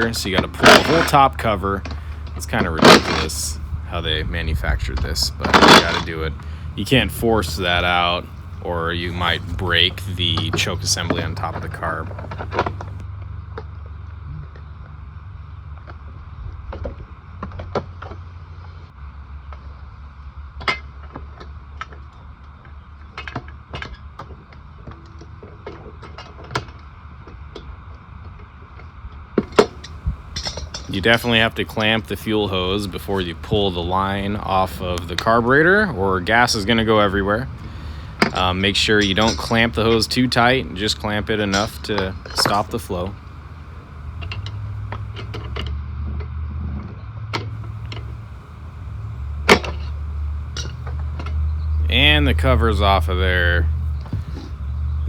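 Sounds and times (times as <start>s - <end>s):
clicks and knocks of tools and parts: 0.0s - 13.0s, 29.4s - 35.3s, 36.3s - 45.8s, 47.4s - 55.0s
steady low hum: 0.0s - 13.0s, 47.6s - 55.0s.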